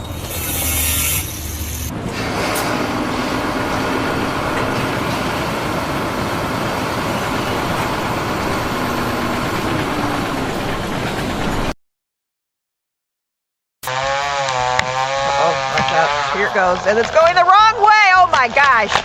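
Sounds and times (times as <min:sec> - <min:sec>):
engine running steadily: 0:00.0 - 0:11.7.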